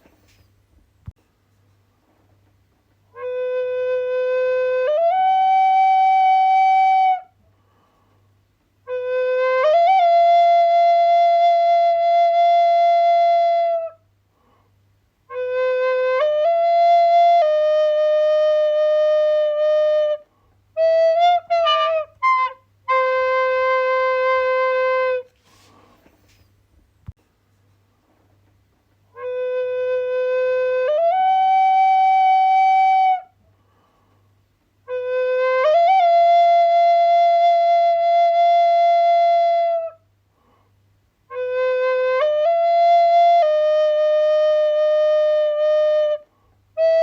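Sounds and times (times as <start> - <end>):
solo flute playing: 3.1 - 7.4, 8.8 - 14.1, 15.3 - 25.8, 29.1 - 33.4, 34.8 - 40.1, 41.3 - 47.0.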